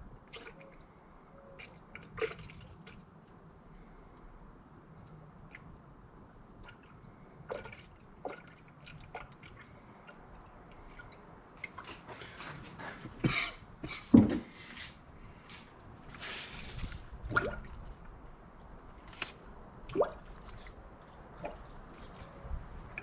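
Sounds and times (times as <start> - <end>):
small knocks and clatter: 13.8 - 14.6.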